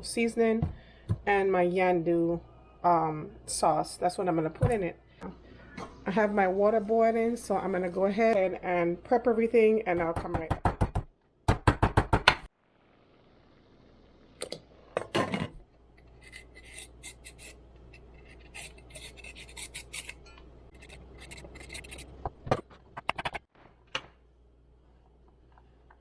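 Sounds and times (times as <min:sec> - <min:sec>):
knife scraping cutting board: 0:16.0 - 0:22.2.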